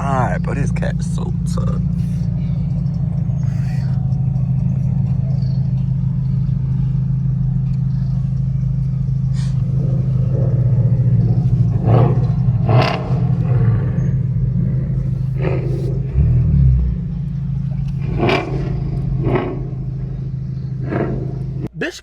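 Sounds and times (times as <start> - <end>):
car engine and exhaust droning: 0.0 - 22.0.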